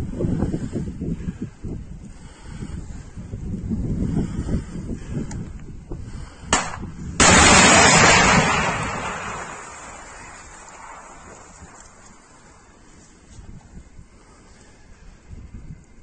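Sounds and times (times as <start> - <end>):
missile launch pop: 6.6 - 11.4
rocket motor rushing blast: 7.2 - 12.1.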